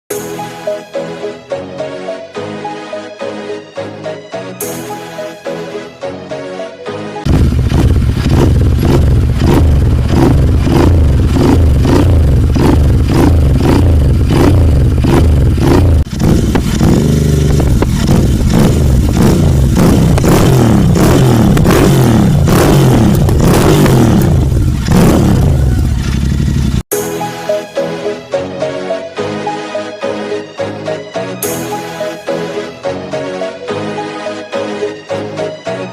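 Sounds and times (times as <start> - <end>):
motorcycle engine throttle blips: 7.3 - 26.8.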